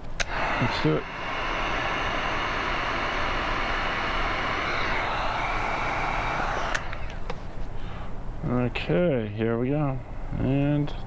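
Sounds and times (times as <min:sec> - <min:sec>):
heat gun blowing air: 0:00.0 - 0:08.0.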